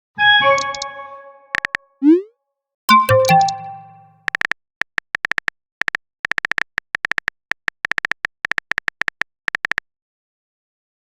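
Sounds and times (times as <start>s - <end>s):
message notification chime: 0.2s - 2.3s, 2.9s - 4.2s
phone keyboard typing clicks: 2.9s - 9.8s.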